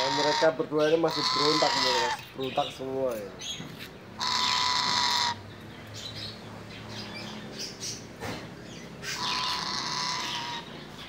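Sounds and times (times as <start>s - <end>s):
parrot screeching: 0.0s - 2.3s, 4.2s - 5.4s, 9.0s - 10.8s.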